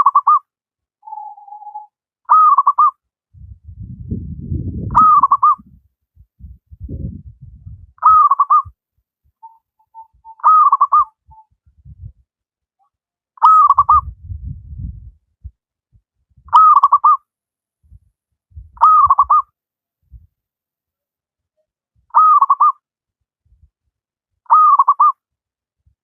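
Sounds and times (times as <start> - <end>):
dove cooing trilled call: 0.0 - 0.4, 1.0 - 3.0, 4.9 - 5.7, 8.0 - 8.7, 9.4 - 11.5, 13.4 - 14.1, 16.5 - 17.2, 18.8 - 19.5, 22.1 - 22.8, 24.5 - 25.2
low rumbling noise: 3.3 - 5.8, 6.4 - 8.0, 14.0 - 15.5.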